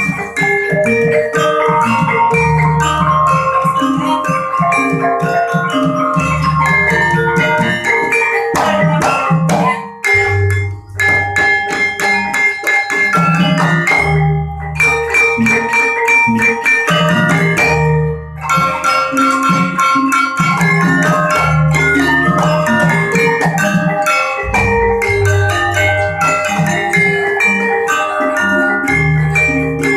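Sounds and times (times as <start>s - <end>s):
struck metal mallet notes: 0.0s - 15.7s, 20.8s - 29.9s
low drum pulse: 24.4s - 25.8s.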